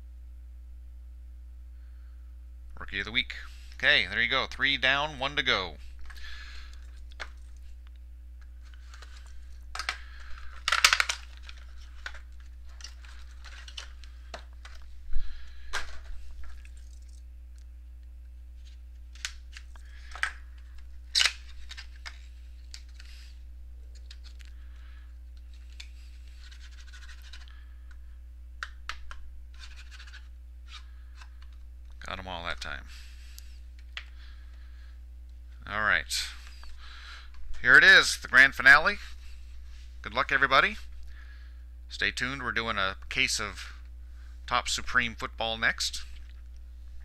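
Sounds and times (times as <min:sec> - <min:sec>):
steady electrical hum: 0:00.0 - 0:47.0
plastic wrapping crinkling and tearing: 0:08.6 - 0:15.0, 0:18.6 - 0:23.2.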